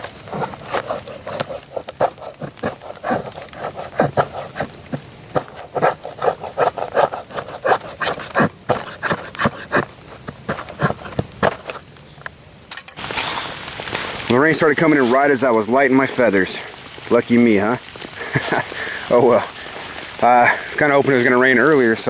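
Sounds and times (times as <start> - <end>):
knife scraping wood: 0.0 - 11.9.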